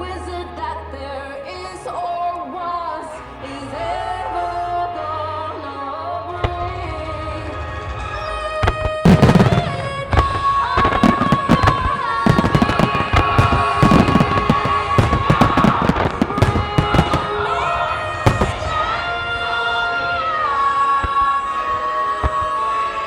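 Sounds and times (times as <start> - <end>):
singer holding high note: 0.0 - 23.0
song music over loudspeakers: 0.0 - 23.0
fireworks bursting and crackling: 6.4 - 23.0.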